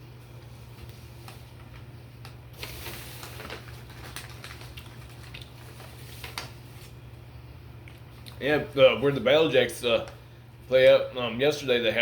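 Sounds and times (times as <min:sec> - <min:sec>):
rustling: 0:02.6 - 0:07.0
chewing clicks and squishes: 0:04.5 - 0:05.6.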